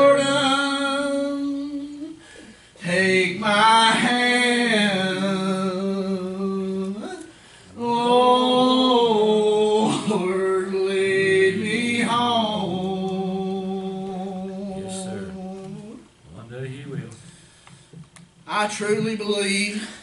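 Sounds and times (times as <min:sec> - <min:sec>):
man singing gospel song: 0:00.0 - 0:02.2, 0:02.8 - 0:16.1.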